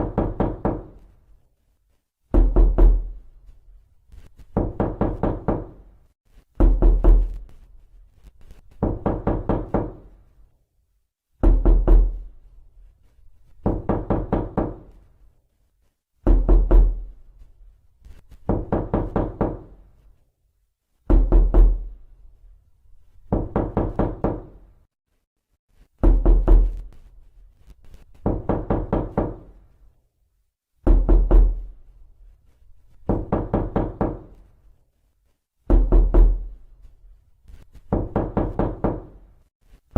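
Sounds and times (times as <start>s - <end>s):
knocking on a door: 0.0s - 1.0s, 2.3s - 3.2s, 4.5s - 5.8s, 6.6s - 7.4s, 8.8s - 10.1s, 11.4s - 12.3s, 13.6s - 15.0s, 16.2s - 17.0s, 18.4s - 19.8s, 21.1s - 21.9s, 23.3s - 24.6s, 26.0s - 26.9s, 28.2s - 29.6s, 30.8s - 31.7s, 33.0s - 34.4s, 35.7s - 36.5s, 37.8s - 39.2s.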